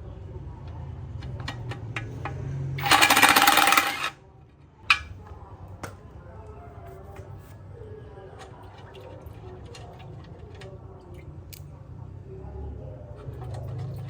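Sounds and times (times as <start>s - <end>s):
tools being handled: 1.2s - 4.2s, 4.9s - 5.1s
power tool rattling burst: 2.8s - 4.2s.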